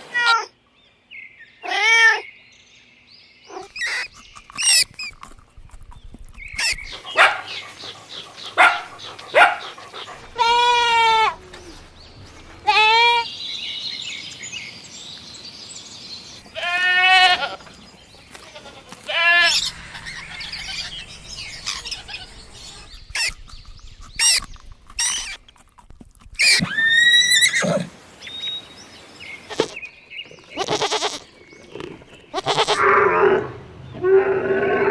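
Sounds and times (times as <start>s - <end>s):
goats bleating: 10.3s - 11.8s, 12.6s - 13.3s, 16.5s - 21.0s, 29.5s - 29.8s, 30.5s - 31.3s, 32.3s - 32.9s
rustling: 17.5s - 26.9s.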